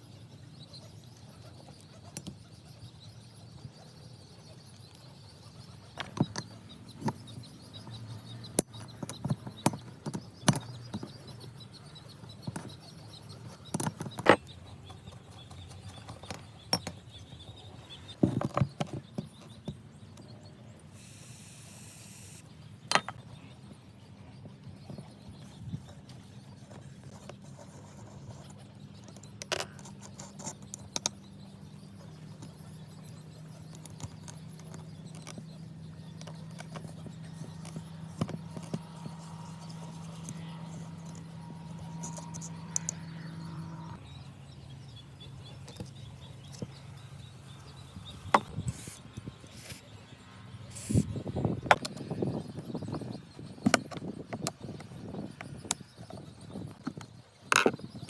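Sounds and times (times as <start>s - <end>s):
tools and metal parts clattering: 8.4s - 19.8s, 22.9s - 23.4s.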